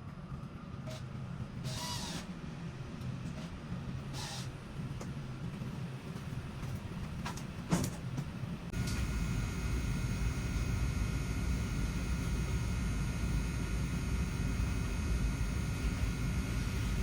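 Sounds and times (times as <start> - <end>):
blower fan running: 8.7 - 17.0.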